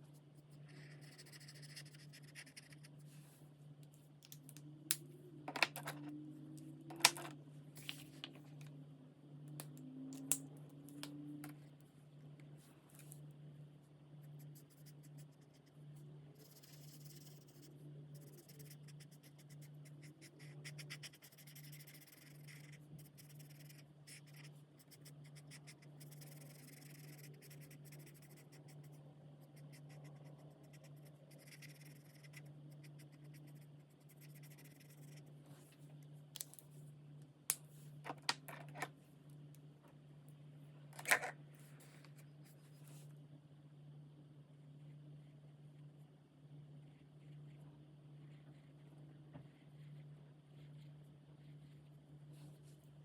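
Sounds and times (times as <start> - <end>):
steady low hum: 0.0 - 53.0
marker scratching on paper: 0.8 - 2.9, 16.4 - 28.9, 29.5 - 35.2.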